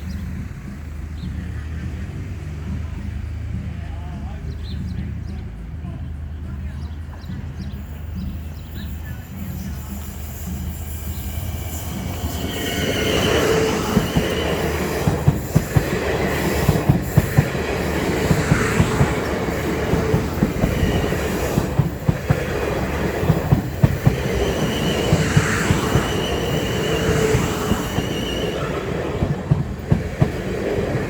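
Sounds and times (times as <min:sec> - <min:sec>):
train rumble: 0:00.0 - 0:31.0
wheels clacking over rail joints: 0:08.1 - 0:31.0
wheel squeal: 0:08.2 - 0:15.6, 0:24.2 - 0:29.0.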